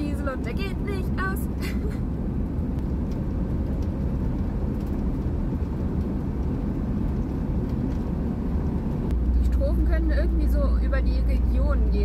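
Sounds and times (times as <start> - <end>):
diesel van engine and road rumble: 0.0 - 12.0.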